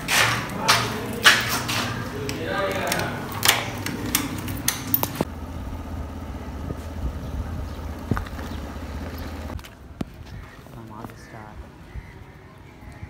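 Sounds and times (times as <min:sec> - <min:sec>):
sharp clicks and knocks: 0:00.0 - 0:05.3
motorcycle engine idling: 0:02.0 - 0:10.5.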